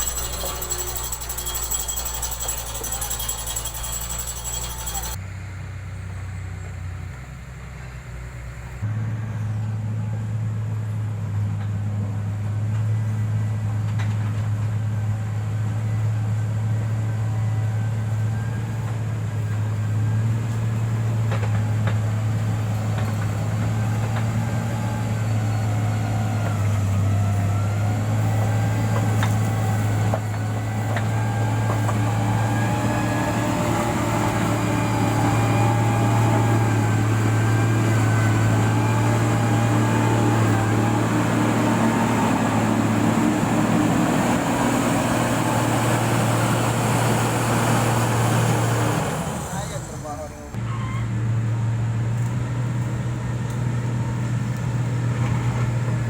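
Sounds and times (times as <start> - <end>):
rattling and clicks: 0.0 - 5.2
diesel engine running: 0.0 - 56.0.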